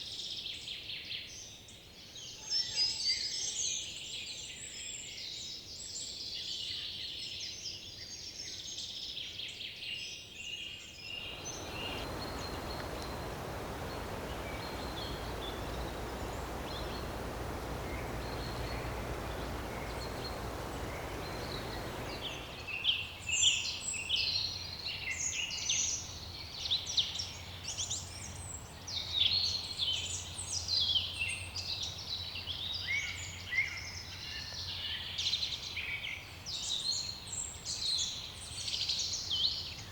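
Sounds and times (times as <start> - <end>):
songbirds chirping and trilling: 11.2 - 22.8
steady rushing noise: 11.2 - 22.8.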